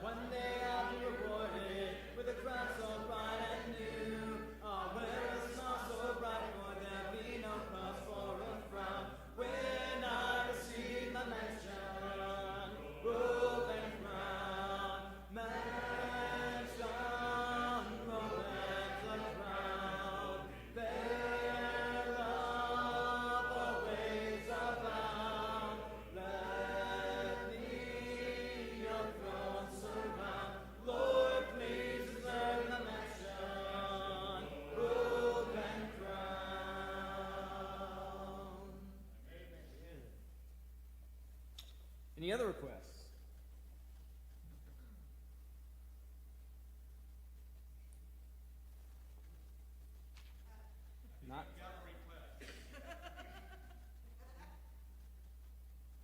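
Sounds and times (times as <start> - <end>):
congregation singing a hymn: 0.0 - 39.2.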